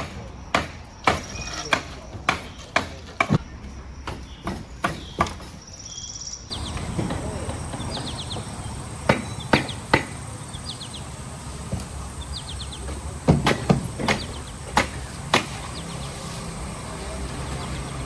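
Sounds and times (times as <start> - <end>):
small birds chirping: 4.0 - 18.0
sharp knocks: 6.5 - 16.7
steady low hum: 6.5 - 18.0.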